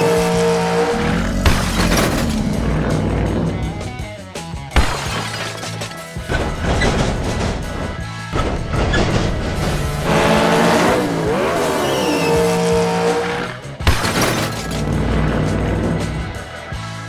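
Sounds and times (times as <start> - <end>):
tyre squeal: 0.0 - 2.3, 8.9 - 13.6
race car engine revving: 0.0 - 4.1, 8.4 - 16.4
background music: 0.0 - 17.0.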